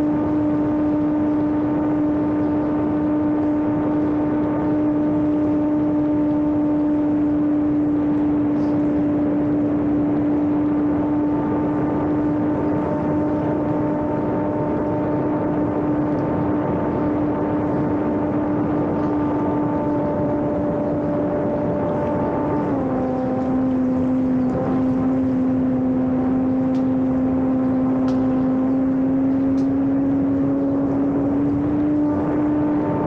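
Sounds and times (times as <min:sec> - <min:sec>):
model airplane motor and propeller: 0:00.0 - 0:33.0.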